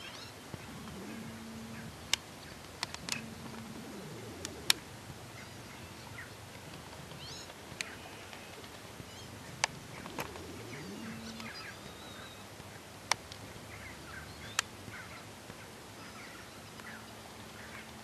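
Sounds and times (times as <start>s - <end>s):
birds chirping: 0.0s - 12.9s
sharp clicks: 0.8s - 4.8s.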